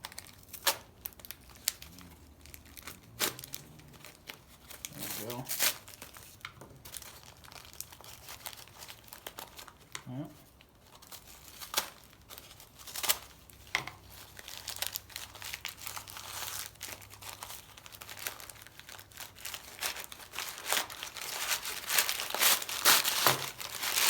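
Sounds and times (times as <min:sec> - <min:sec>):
packaging crinkling and ripping: 0:00.0 - 0:24.0.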